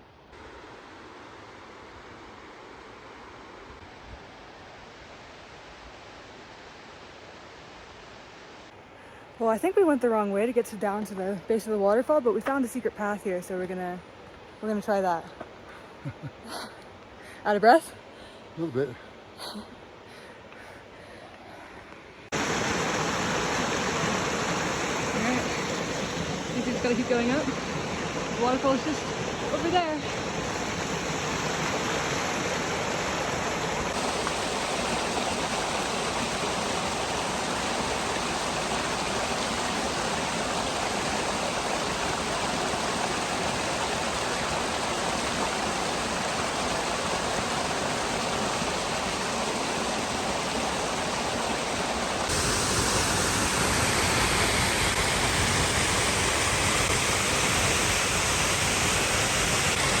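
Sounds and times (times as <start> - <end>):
waterfall roaring: 22.3 - 60.0.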